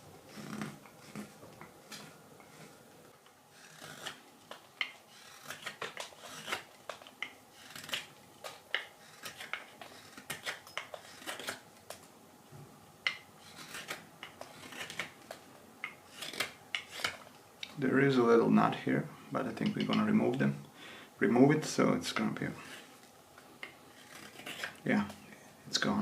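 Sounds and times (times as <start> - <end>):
knife shaving wood: 0.2 - 12.0, 13.0 - 17.3, 21.5 - 25.2.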